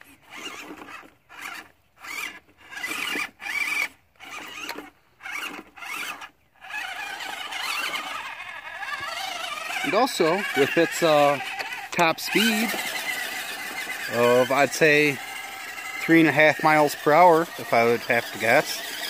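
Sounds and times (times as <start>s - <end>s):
small electric motor whining: 0.0s - 19.0s.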